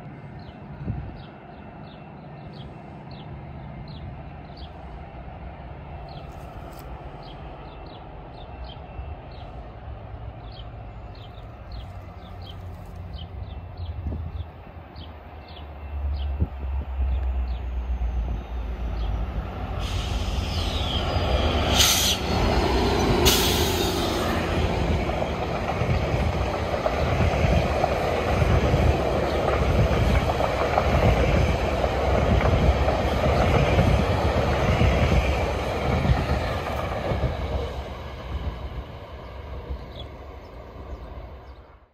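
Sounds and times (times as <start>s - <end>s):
train wheels rumbling on rails: 0.0s - 41.8s
short sharp hisses: 19.8s - 21.0s, 21.7s - 22.3s.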